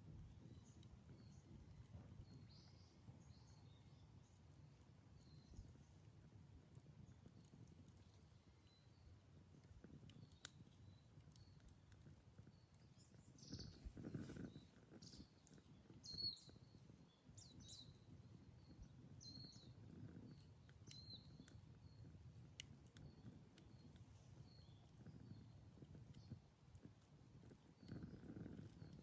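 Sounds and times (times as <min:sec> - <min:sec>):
campfire crackling and popping: 0:00.0 - 0:29.0
bird chirping: 0:12.4 - 0:22.1.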